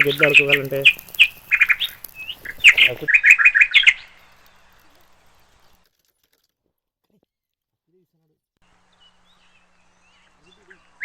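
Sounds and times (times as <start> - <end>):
small birds chirping: 0.0 - 6.3, 8.2 - 11.0.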